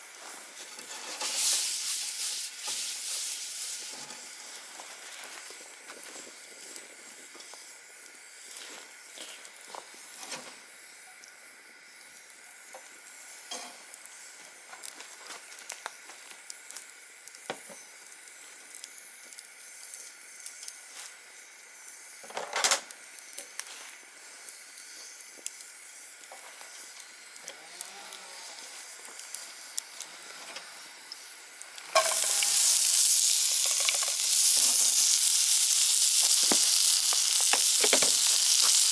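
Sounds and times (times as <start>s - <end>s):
food sizzling in frying: 0.0s - 11.0s, 28.5s - 38.9s
faint steady hiss: 0.0s - 38.9s
campfire crackling and popping: 31.5s - 38.9s.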